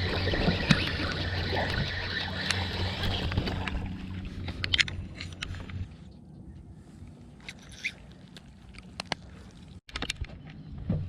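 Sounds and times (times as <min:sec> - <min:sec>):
boat motor humming: 0:00.0 - 0:06.0
water noise: 0:00.0 - 0:09.9.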